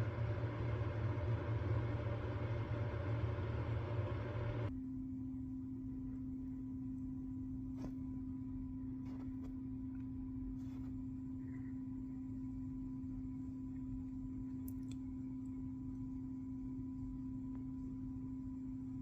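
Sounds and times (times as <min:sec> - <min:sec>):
heat pump compressor humming: 0:00.0 - 0:04.7.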